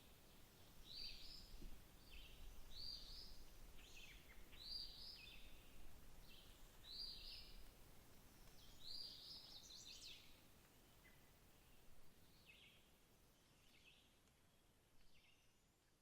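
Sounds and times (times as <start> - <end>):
songbird calling: 0.8 - 7.7, 8.3 - 10.4, 11.0 - 16.0.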